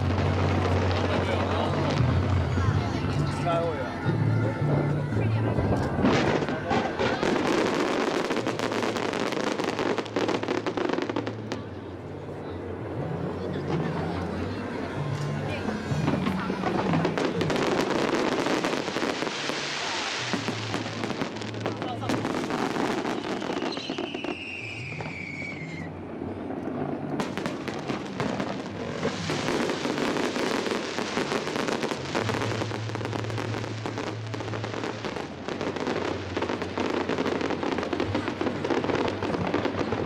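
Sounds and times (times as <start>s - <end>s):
fireworks crackling and popping: 0.0s - 40.0s
falling firework whistle: 22.5s - 26.1s.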